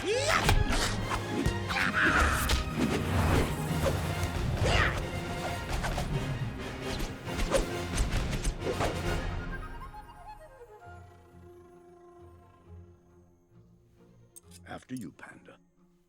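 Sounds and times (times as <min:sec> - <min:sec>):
hard whacks and crashes: 0:00.0 - 0:06.2
orchestral film score: 0:00.0 - 0:15.9
swishing whooshes: 0:00.6 - 0:09.2.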